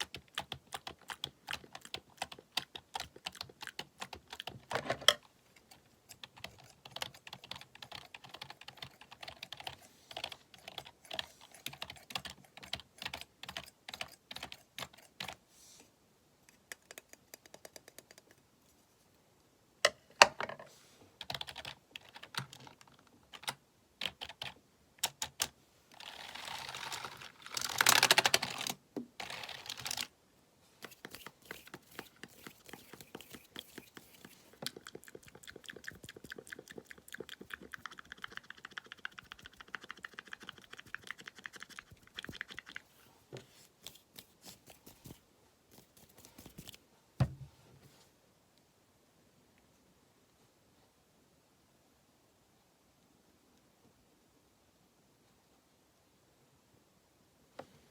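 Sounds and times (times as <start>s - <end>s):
computer keyboard typing: 0.0s - 4.7s, 6.1s - 15.4s, 21.2s - 25.5s, 30.8s - 42.9s.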